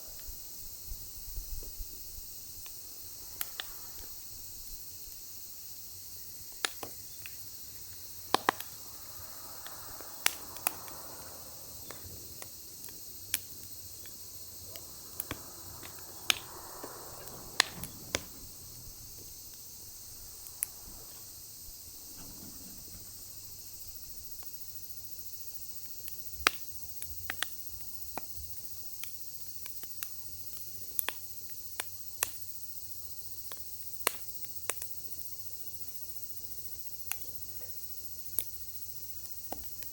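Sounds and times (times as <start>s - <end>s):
rush of flame: 0.0s - 26.6s
steady high hiss: 0.0s - 39.9s
firewood crackling and popping: 1.6s - 32.5s, 33.8s - 34.9s.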